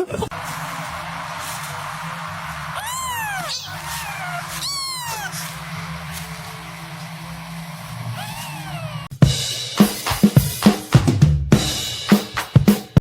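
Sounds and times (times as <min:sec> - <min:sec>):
cat meowing: 0:02.8 - 0:05.6, 0:08.1 - 0:09.1.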